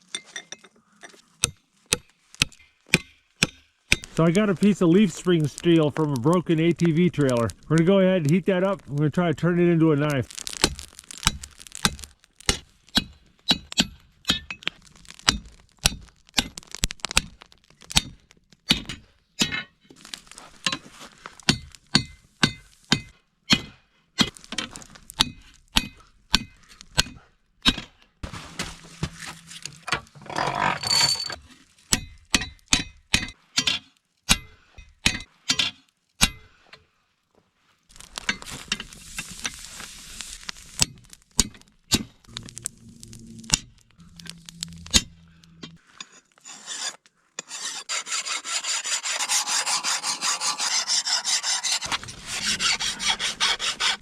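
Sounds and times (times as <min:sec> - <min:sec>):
hammer striking steel on anvil: 0:01.4 - 0:04.1.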